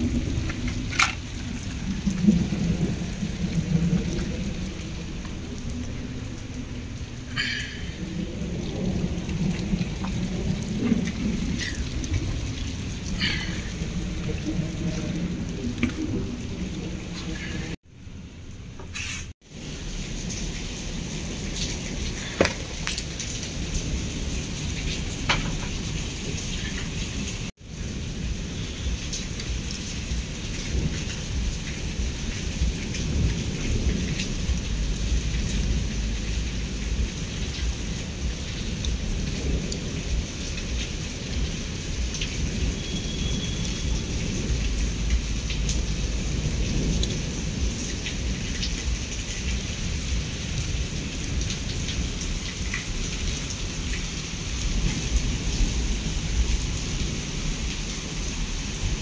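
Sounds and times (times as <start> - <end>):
raindrops ticking on surfaces: 0.0 - 59.0
steady rain falling: 0.0 - 59.0
low rumble: 27.4 - 40.8.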